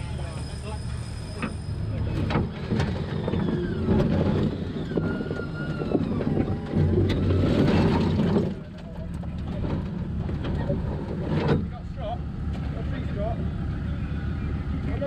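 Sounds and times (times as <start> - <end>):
race car engine under load: 0.0 - 15.0
knocks and clanks: 2.2 - 11.9.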